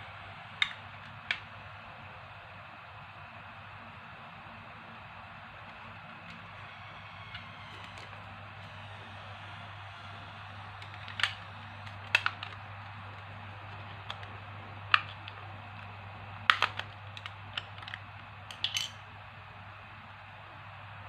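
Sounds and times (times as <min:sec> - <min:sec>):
low hum: 0:00.0 - 0:17.6
plastic toy clicks and taps: 0:00.6 - 0:01.4, 0:10.7 - 0:12.6, 0:14.9 - 0:15.4, 0:16.5 - 0:19.0.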